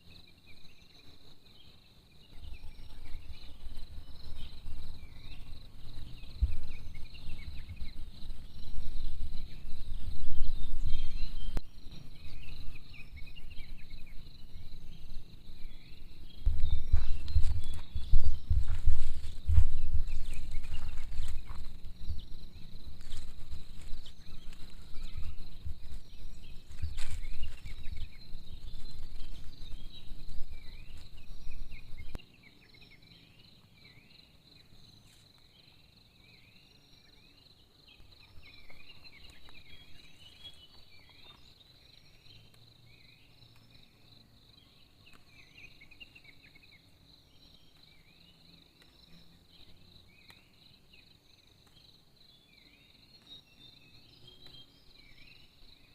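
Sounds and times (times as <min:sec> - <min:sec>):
insects chirping: 0:00.0 - 0:55.9
insects trilling: 0:00.0 - 0:55.9
rustling: 0:16.5 - 0:32.2.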